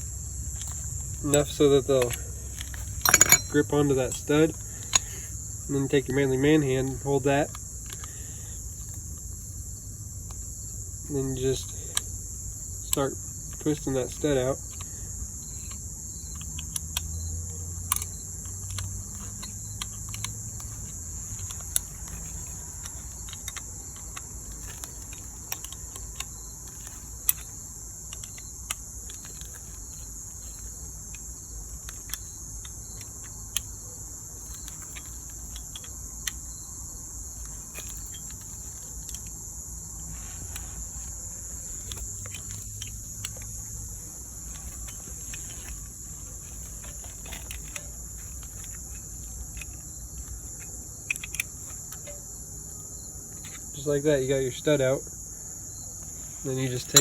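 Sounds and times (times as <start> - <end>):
crickets chirping: 0.0 - 57.0
metallic wrench clicks: 0.6 - 5.2, 51.1 - 52.2.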